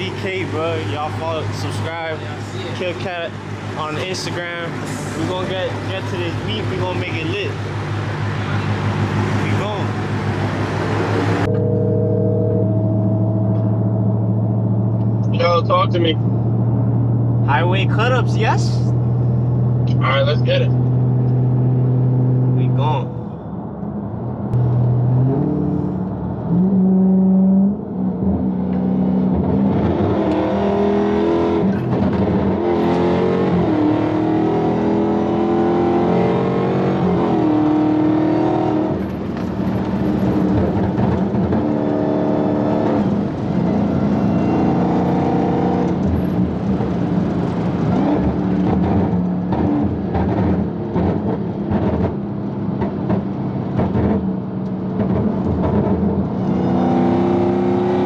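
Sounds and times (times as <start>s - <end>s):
car engine accelerating hard: 24.6s - 58.0s.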